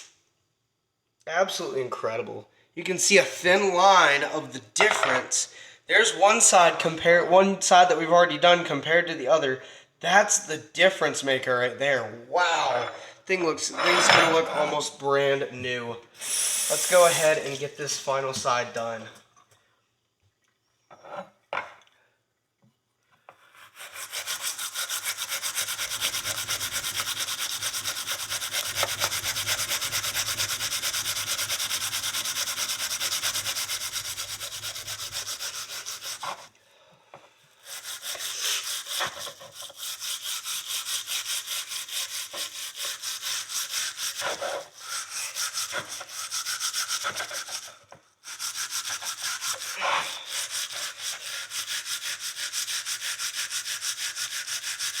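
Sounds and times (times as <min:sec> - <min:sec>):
steel wool scrubbing metal: 0:16.2 - 0:18.3, 0:23.5 - 0:36.5, 0:37.6 - 0:55.0.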